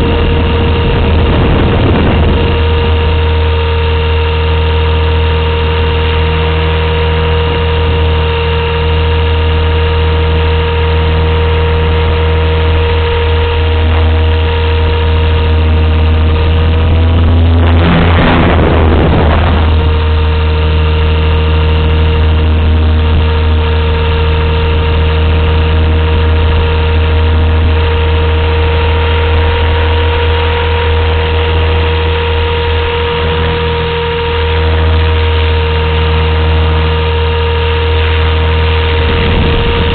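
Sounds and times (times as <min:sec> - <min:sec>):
helicopter rotor whine: 0:00.0 - 0:39.9
burst of noise: 0:15.9 - 0:21.9, 0:38.6 - 0:39.9.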